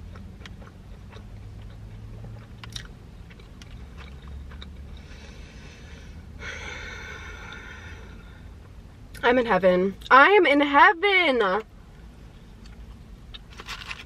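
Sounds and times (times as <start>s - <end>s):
chewing with crunches: 0.0s - 5.1s.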